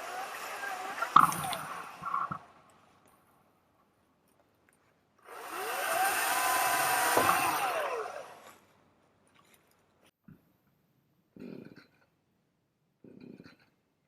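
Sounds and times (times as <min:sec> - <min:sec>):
electric chainsaw whining: 0:00.0 - 0:02.6, 0:05.2 - 0:08.6.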